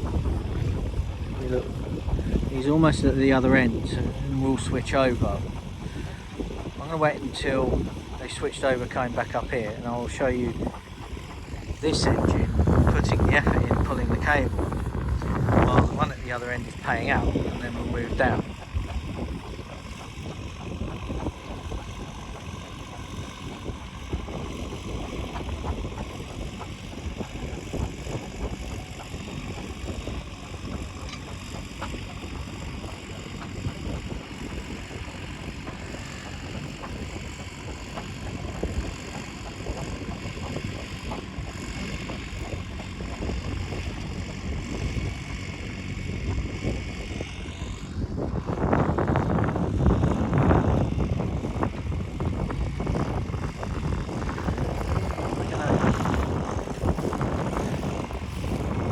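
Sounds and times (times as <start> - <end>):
engine running steadily: 0.0 - 58.9
low rumble: 0.0 - 58.9.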